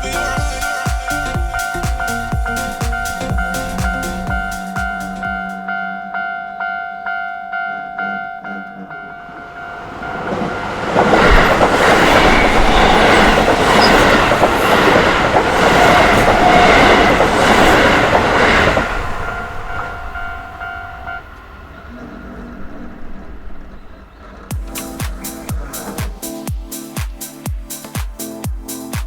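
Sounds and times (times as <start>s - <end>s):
level crossing warning bell: 0.0s - 21.7s
train wheels clattering over rails: 10.0s - 20.3s.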